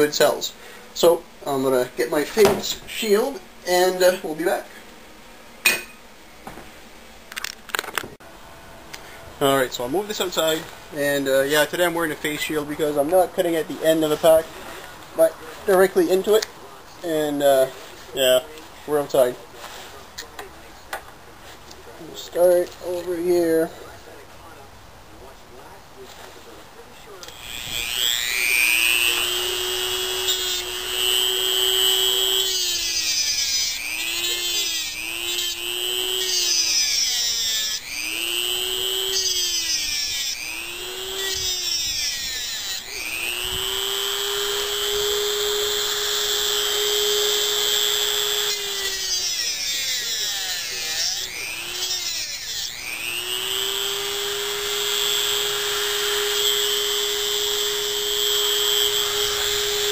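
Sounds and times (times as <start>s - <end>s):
rotary tool cutting with whine: 27.2s - 59.9s.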